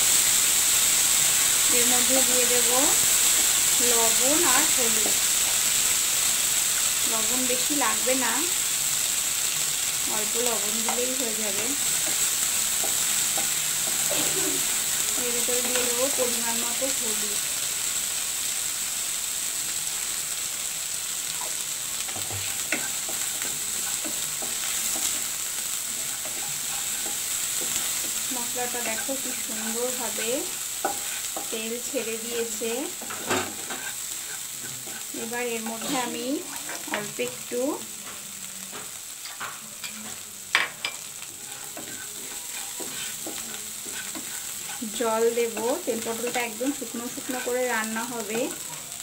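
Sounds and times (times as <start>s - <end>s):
spice paste sizzling in hot oil: 0.0s - 49.0s
spatula scraping and stirring: 10.3s - 16.9s, 21.3s - 37.0s, 38.0s - 48.8s.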